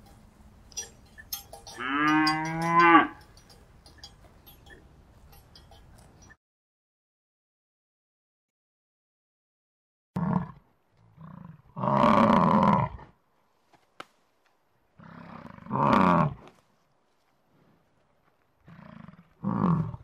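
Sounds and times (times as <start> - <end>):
bison bellowing: 15.0 - 16.4.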